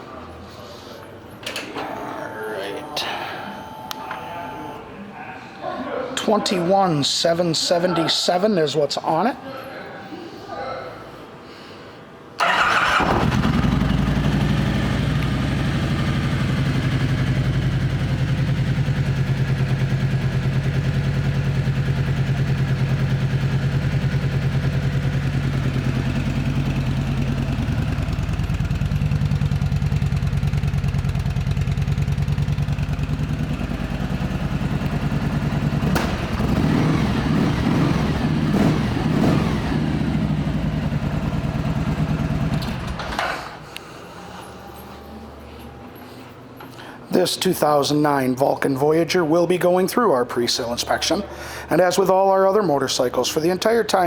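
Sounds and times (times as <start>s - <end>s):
click: 3.9s - 4.2s
motorcycle engine starting and idling: 12.4s - 43.6s.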